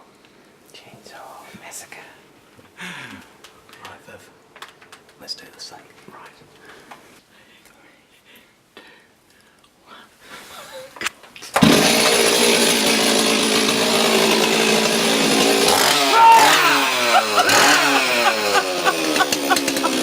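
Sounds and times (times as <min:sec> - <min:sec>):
chainsaw running and revving: 0:11.6 - 0:20.0.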